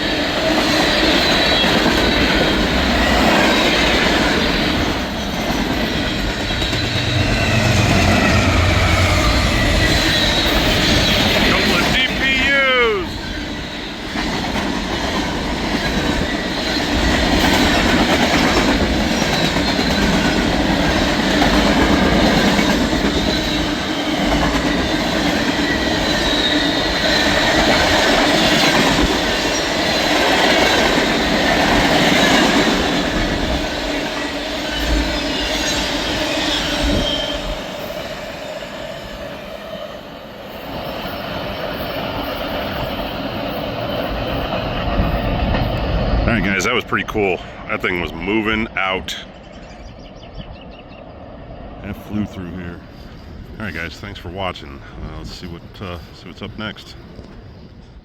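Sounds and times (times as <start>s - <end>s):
train wheels rumbling on rail: 0.0s - 58.0s
high wheel squeals: 4.8s - 12.2s.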